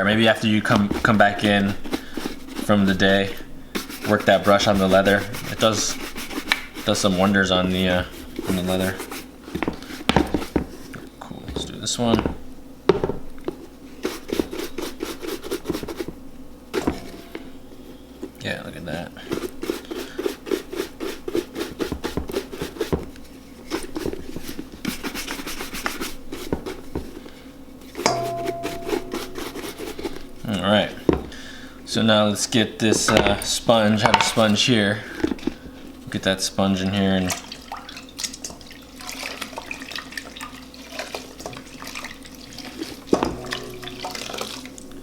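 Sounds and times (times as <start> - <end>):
brush scrubbing leather boot: 0.1 - 12.4, 13.5 - 16.2, 19.2 - 27.2, 27.9 - 31.2
water running and splashing: 37.1 - 45.0.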